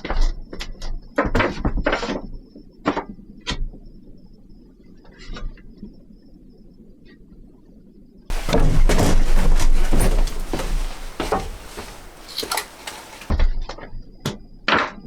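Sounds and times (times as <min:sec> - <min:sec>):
wooden boards knocking: 0:08.3 - 0:13.3.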